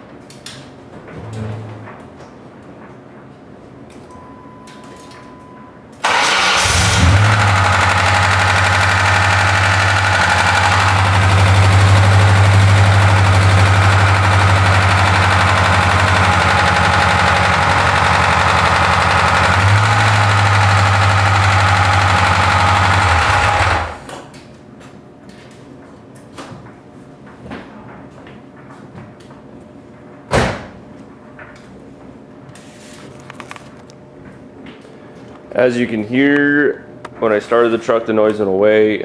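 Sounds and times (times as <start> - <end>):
car engine running: 6.1 - 24.0.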